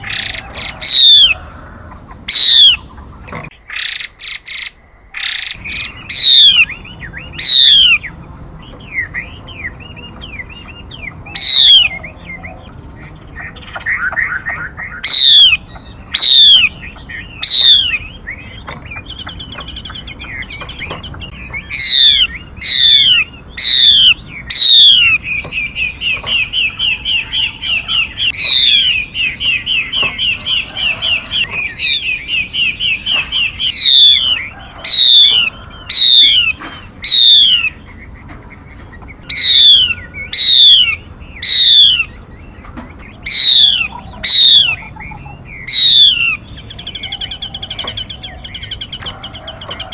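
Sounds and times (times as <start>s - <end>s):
bird chattering trill: 0.0s - 49.9s.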